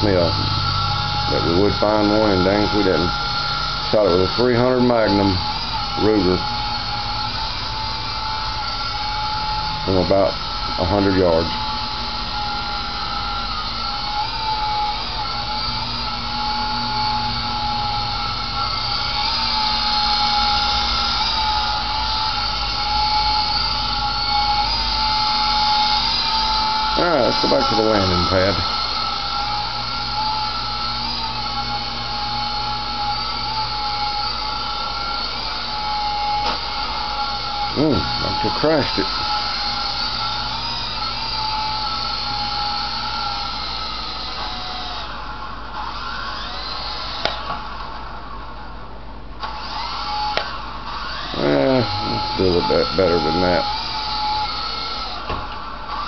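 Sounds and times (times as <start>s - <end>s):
toy helicopter motor whine: 0.0s - 56.0s
sharp click: 50.4s - 50.6s.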